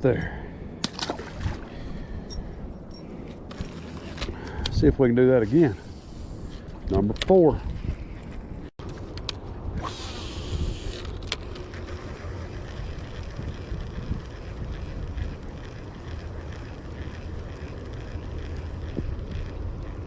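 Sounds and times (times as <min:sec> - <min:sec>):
wind buffeting microphone: 0:04.5 - 0:08.7, 0:12.3 - 0:20.0.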